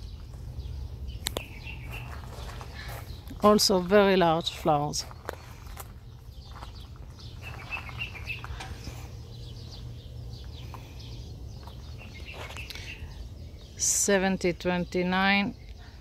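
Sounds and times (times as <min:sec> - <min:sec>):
small bird chirps: 0:00.0 - 0:03.4, 0:05.0 - 0:13.8
low outdoor rumble: 0:00.0 - 0:16.0.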